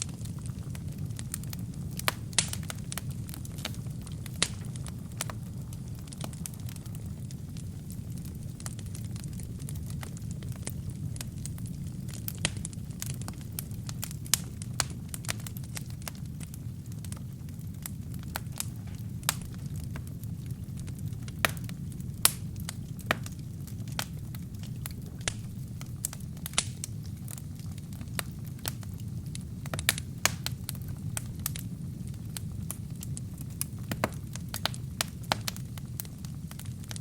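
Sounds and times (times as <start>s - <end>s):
burning wood crackling and popping: 0.0s - 37.0s
fire flames rumbling: 0.0s - 37.0s.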